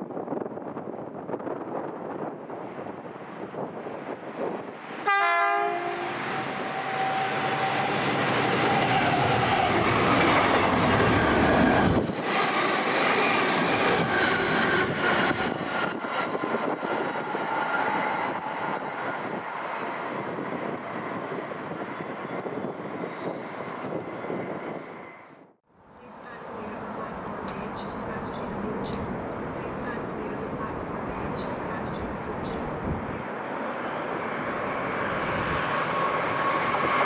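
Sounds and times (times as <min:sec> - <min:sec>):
train rushing past: 0:00.3 - 0:37.0
train horn: 0:05.0 - 0:08.1.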